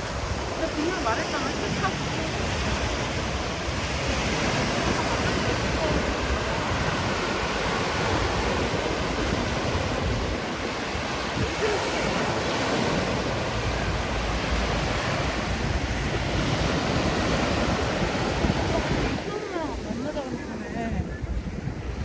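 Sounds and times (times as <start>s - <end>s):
surf washing onto beach: 0.0s - 22.0s.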